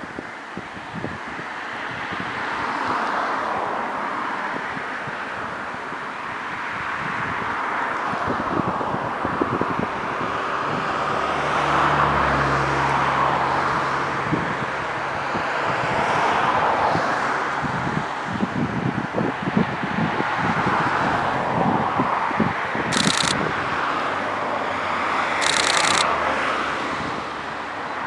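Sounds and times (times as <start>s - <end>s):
wind buffeting microphone: 0.0s - 3.7s, 4.5s - 11.2s, 13.6s - 23.9s
distant vehicle running: 22.9s - 28.0s.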